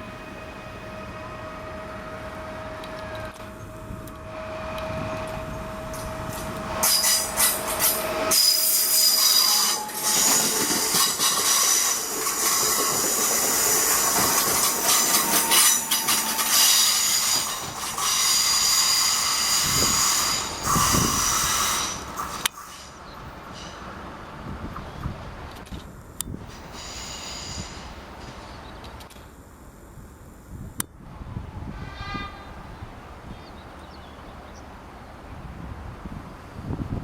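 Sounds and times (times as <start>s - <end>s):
passenger train passing: 0.0s - 37.0s
train wheels squealing on rails: 0.1s - 25.1s, 26.4s - 29.0s.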